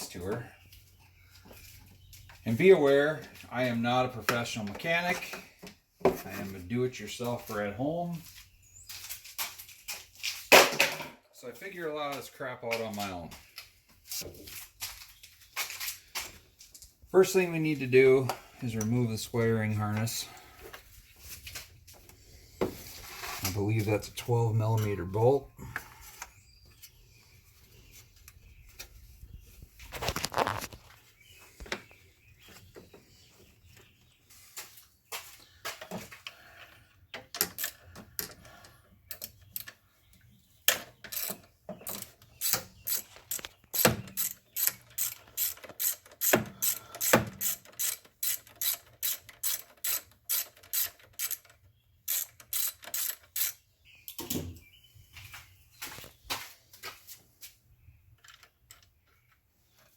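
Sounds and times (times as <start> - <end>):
socket ratchet clicking: 52.1 - 53.6.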